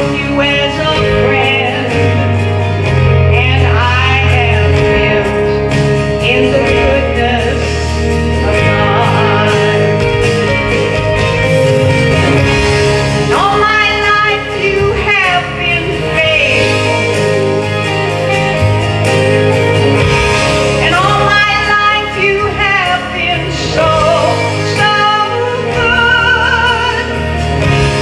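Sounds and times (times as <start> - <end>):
band with bass and guitar: 0.0 - 28.0
voices singing worship song: 6.2 - 10.4, 12.2 - 17.8, 20.2 - 28.0.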